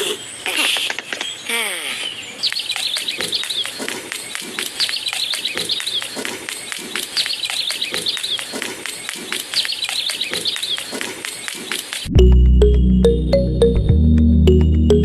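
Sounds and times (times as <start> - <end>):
quick falling bird chirps: 0.0 - 12.0
ticking beat: 11.9 - 15.0.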